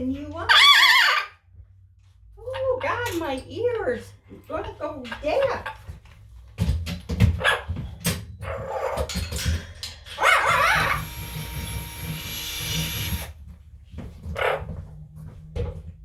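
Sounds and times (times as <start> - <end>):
parrots squawking and screeching: 0.5 - 1.4, 10.1 - 13.2.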